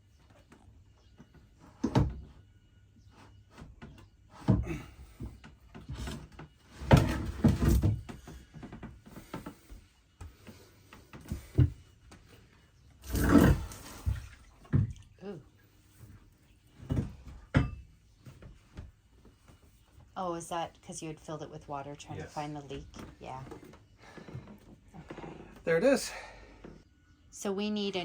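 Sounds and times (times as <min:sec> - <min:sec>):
metal clunks and knocks: 0:16.8 - 0:18.9.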